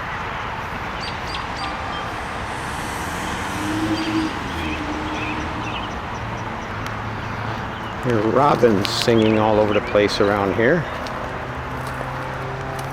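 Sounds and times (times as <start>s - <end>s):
traffic noise: 0.0s - 12.9s
low drone: 0.6s - 8.0s.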